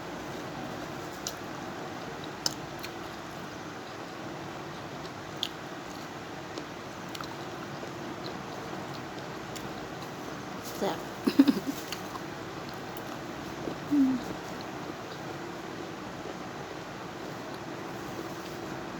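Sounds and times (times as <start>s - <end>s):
chewing and biting food: 1.1s - 10.2s.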